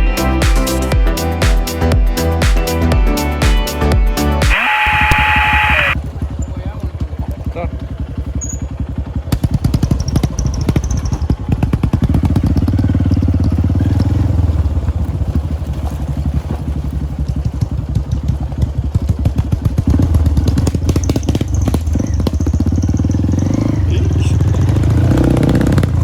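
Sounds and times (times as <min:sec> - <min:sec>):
motorcycle engine running: 0:04.5 - 0:26.0.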